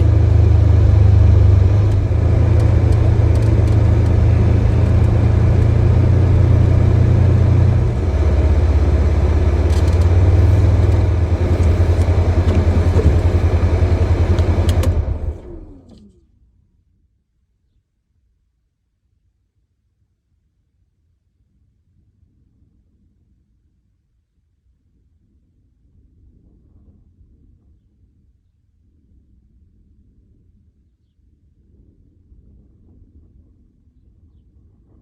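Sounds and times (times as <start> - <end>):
vehicle engine droning: 0.0 - 16.1.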